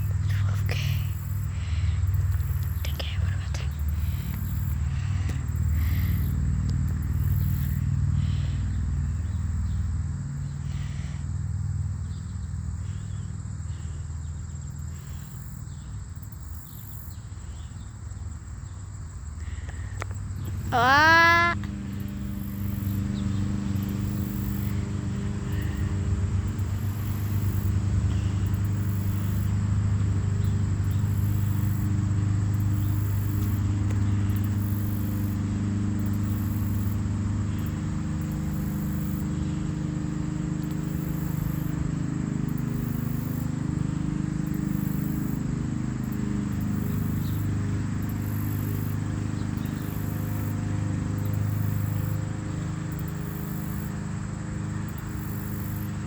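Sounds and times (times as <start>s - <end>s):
insects trilling: 0.0s - 56.0s
motor running: 20.4s - 54.2s.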